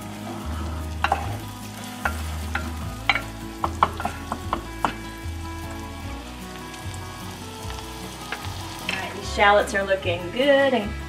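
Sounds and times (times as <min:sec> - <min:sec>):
shallots sizzling in butter: 0:00.0 - 0:11.0
wooden spoon knocking a pan: 0:01.0 - 0:01.4, 0:02.0 - 0:05.2.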